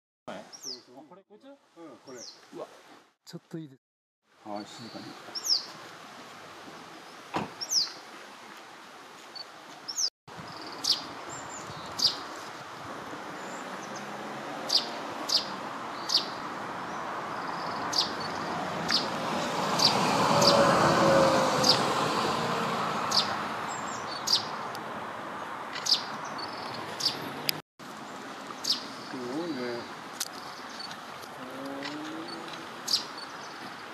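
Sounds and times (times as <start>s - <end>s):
sparrows chirping: 0.4s - 1.0s, 2.1s - 2.4s, 4.7s - 5.8s, 7.0s - 8.0s, 9.9s - 12.6s, 13.2s - 20.6s, 23.0s - 27.4s, 28.1s - 31.2s, 31.8s - 33.9s.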